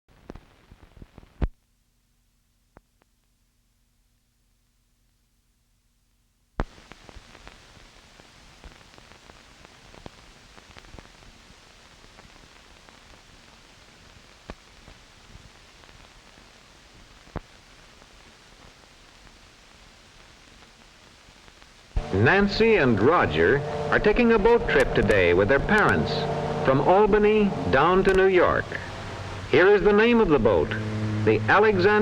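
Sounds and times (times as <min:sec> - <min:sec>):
crackles and pops: 0:00.1 - 0:01.6, 0:06.6 - 0:22.0
film soundtrack hiss: 0:06.6 - 0:32.0.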